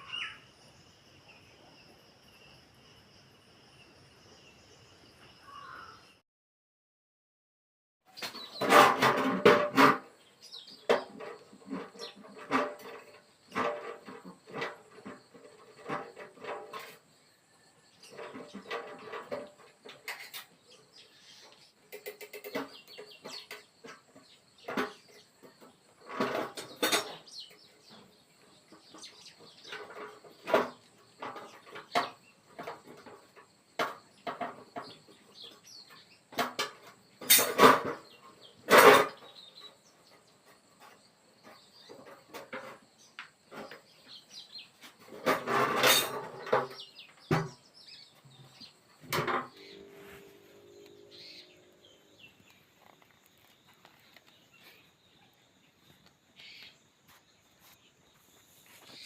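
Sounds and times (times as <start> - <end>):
metal clattering: 45.0 - 47.6
faint high-pitched tone: 49.5 - 52.4.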